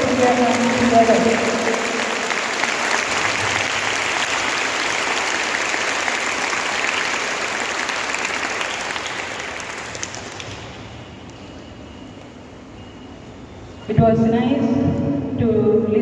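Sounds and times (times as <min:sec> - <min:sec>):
large audience clapping: 0:00.0 - 0:11.0.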